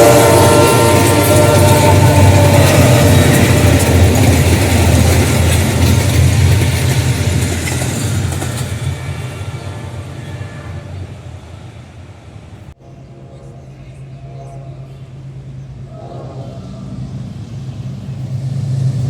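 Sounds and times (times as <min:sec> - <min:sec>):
train horn: 0:00.0 - 0:06.0, 0:09.0 - 0:11.3, 0:12.8 - 0:19.0
locomotive engine rumble: 0:00.0 - 0:19.0
train wheel noise: 0:00.0 - 0:19.0.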